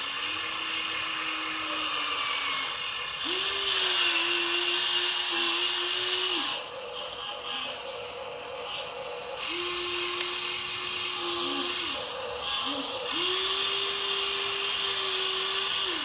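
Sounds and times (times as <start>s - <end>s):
toy electric motor whining: 0.0s - 16.0s.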